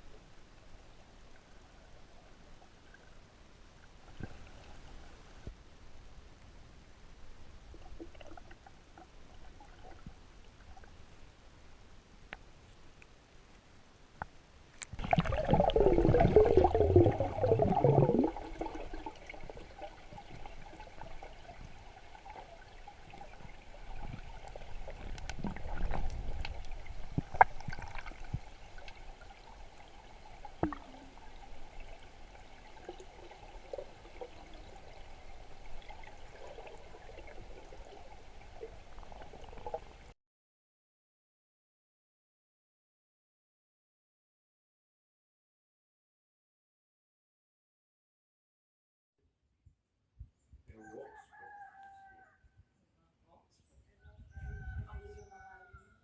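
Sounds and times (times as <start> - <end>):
water bubbling and gurgling: 7.7 - 10.9, 15.0 - 40.1
faint wash of water: 14.9 - 40.1.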